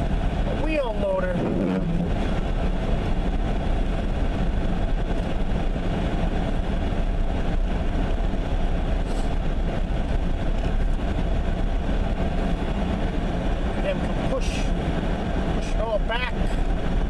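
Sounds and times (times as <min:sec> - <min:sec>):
road noise: 0:00.0 - 0:17.0
truck engine rumbling: 0:00.0 - 0:17.0.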